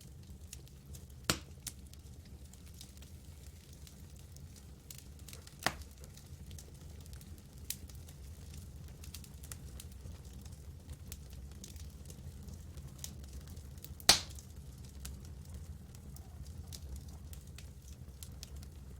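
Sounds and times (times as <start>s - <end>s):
campfire crackling: 0.0s - 18.9s
sharp pops of burning wood: 1.2s - 1.8s, 5.0s - 6.0s, 13.8s - 14.5s.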